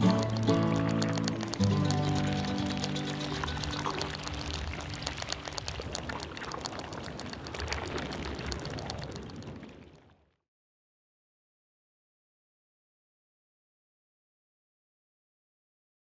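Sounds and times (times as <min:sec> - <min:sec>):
background music: 0:00.0 - 0:05.3
water pouring and splashing: 0:00.0 - 0:10.3.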